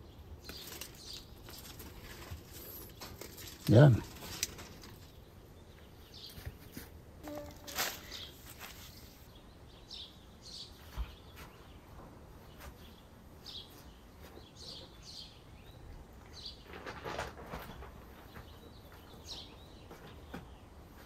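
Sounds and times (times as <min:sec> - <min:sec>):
small birds chirping: 0:00.0 - 0:21.0
brief rustle: 0:06.3 - 0:09.3.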